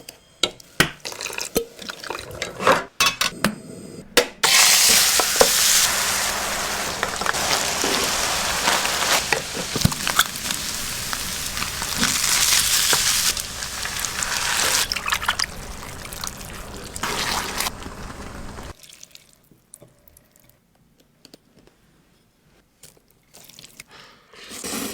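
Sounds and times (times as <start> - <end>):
person eating or drinking: 5.8 - 17.8.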